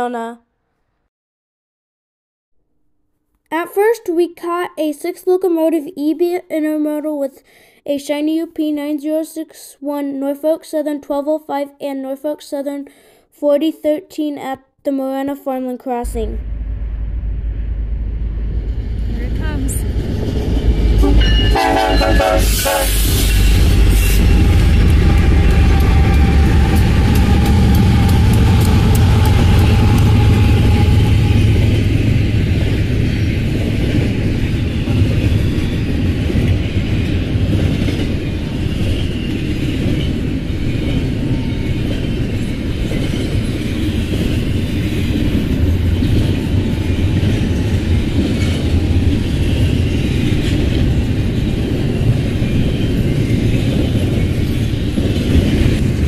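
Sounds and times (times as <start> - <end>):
diesel locomotive engine rumble: 16.0 - 56.0
freight cars clickety-clack: 23.4 - 56.0.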